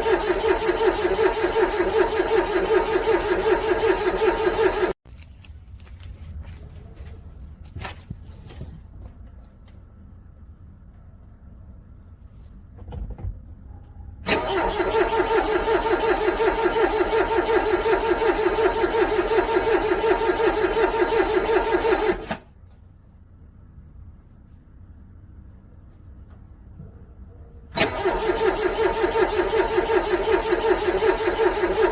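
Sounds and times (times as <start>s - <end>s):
car engine cranking: 0.0s - 5.0s, 14.2s - 22.5s, 27.7s - 31.9s.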